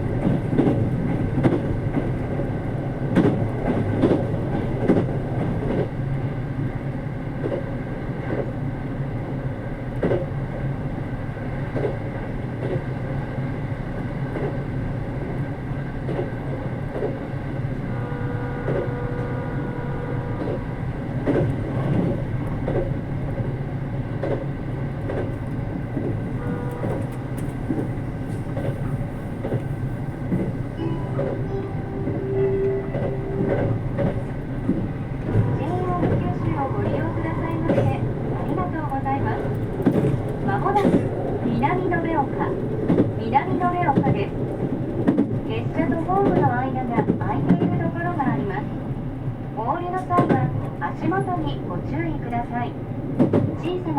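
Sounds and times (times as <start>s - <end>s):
train wheels and motors rumbling: 0.0s - 53.9s
faint held tones: 30.8s - 33.8s.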